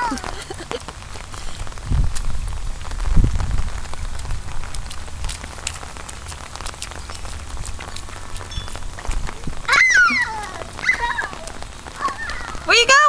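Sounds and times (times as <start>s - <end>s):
rain falling: 0.0s - 13.0s
drops ticking: 4.0s - 13.0s.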